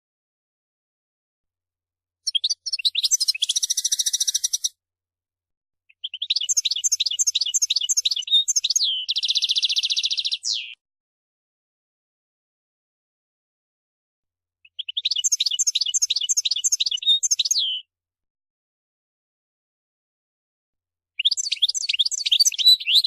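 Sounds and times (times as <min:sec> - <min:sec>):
goldfinch singing: 0:02.3 - 0:04.7, 0:06.0 - 0:10.8, 0:14.6 - 0:17.8, 0:21.2 - 0:23.0.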